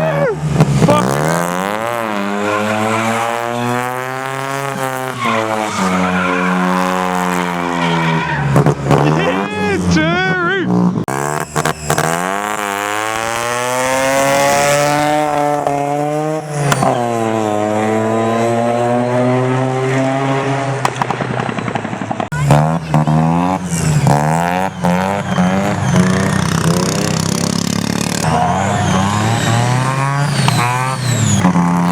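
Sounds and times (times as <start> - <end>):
rotary engine accelerating: 0.0 - 31.9.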